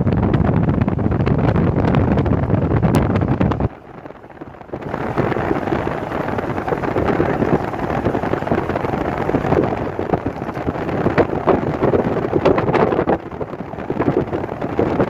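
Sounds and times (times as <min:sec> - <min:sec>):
wind on microphone: 0:00.0 - 0:15.0
train cars rumbling: 0:03.7 - 0:15.0.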